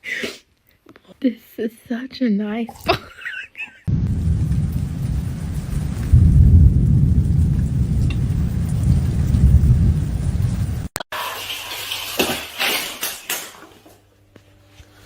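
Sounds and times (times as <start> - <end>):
loud low rumble: 3.9 - 10.9.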